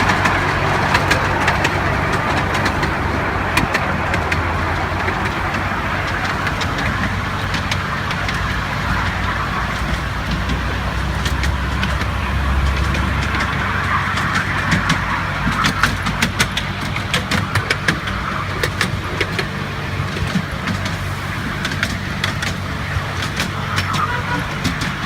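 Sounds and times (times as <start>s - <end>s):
miniature train mechanical hum: 0.0s - 25.0s
sharp clicks and ticks: 0.0s - 25.0s.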